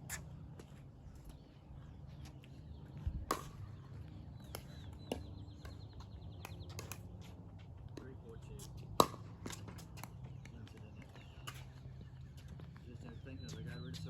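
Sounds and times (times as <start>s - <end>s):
paddles striking ball: 8.9s - 10.1s.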